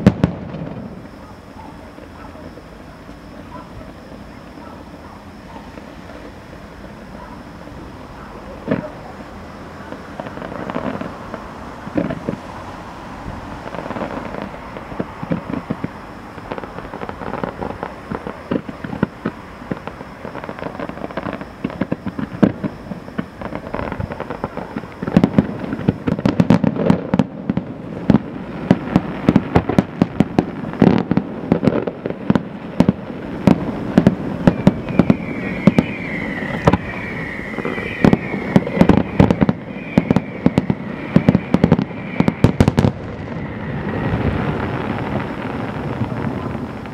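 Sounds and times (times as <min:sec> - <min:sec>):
fireworks bangs and crackles: 0:00.0 - 0:46.9
warbling high whistles: 0:00.9 - 0:26.5, 0:33.8 - 0:45.0.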